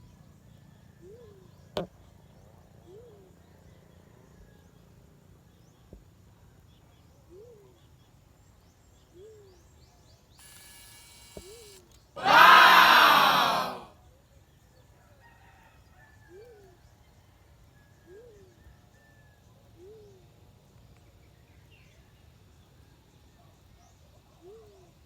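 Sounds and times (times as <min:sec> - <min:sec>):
hiss: 0:10.4 - 0:11.8
sharp click: 0:10.4 - 0:12.0.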